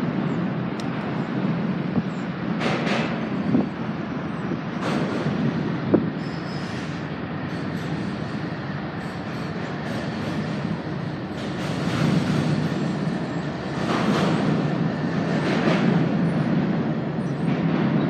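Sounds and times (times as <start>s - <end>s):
diesel locomotives rumbling: 0.0s - 18.0s.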